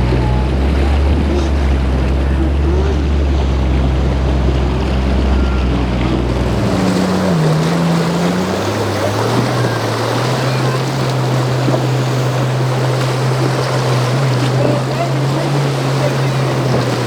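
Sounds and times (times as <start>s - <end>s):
motorboat engines: 0.0s - 17.0s
waves: 0.0s - 17.0s
wind on microphone: 3.2s - 17.0s.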